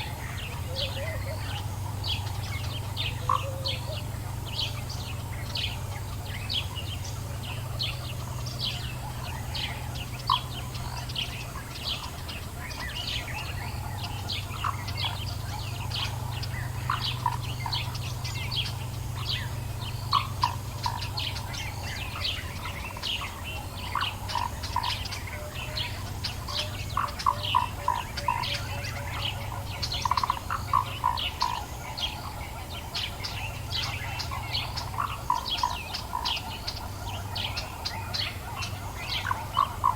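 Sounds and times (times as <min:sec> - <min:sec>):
birds chirping: 0:00.0 - 0:39.9
lower repeated bird notes: 0:00.0 - 0:39.9
steady low hum: 0:00.0 - 0:39.9.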